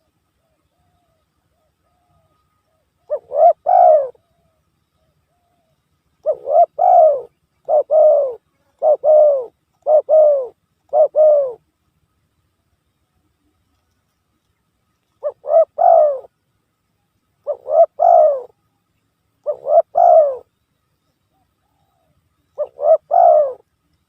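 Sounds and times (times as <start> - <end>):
dove cooing: 0.0 - 11.6, 15.2 - 16.3, 17.4 - 18.6, 19.4 - 20.5, 21.3 - 23.7.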